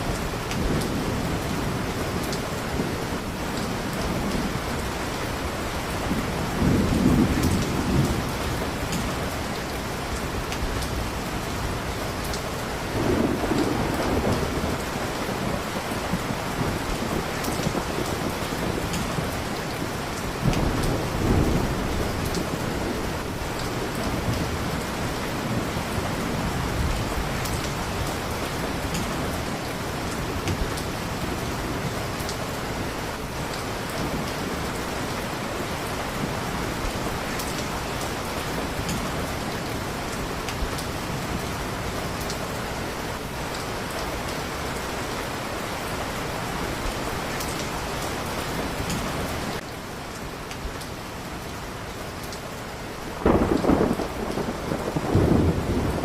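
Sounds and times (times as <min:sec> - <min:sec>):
thunder rumble: 0:00.0 - 0:12.3, 0:12.9 - 0:32.4, 0:53.2 - 0:56.0
heavy rain falling: 0:00.0 - 0:56.0.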